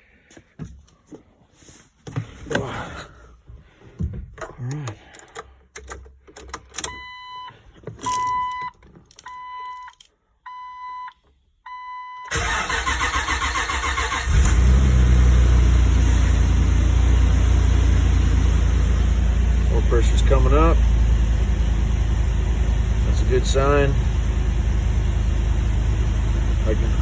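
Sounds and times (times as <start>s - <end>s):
starter cranking engine: 12.3s - 15.1s
engine idling: 12.3s - 27.0s.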